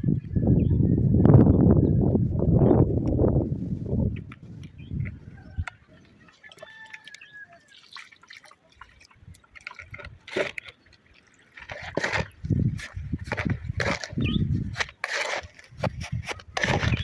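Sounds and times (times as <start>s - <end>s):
water dripping: 4.2s - 11.6s.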